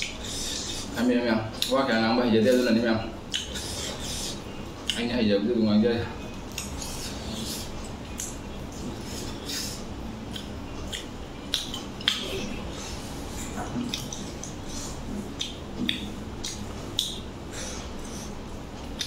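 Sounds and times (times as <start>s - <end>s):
man chewing with wet mouth smacks: 3.2s - 5.0s, 6.2s - 19.0s.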